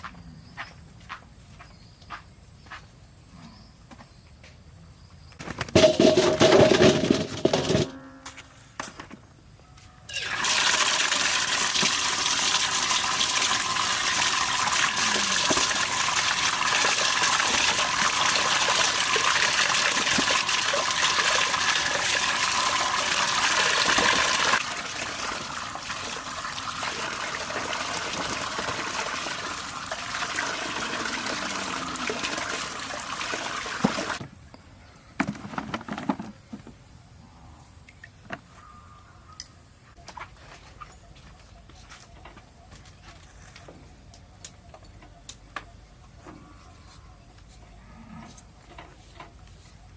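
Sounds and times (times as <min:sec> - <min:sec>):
water running from a tap: 0:10.2 - 0:34.2.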